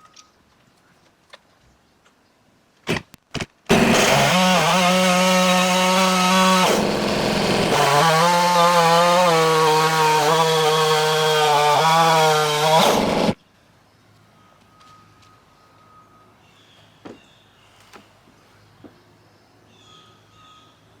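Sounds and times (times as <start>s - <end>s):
chainsaw cutting log: 3.7s - 13.4s.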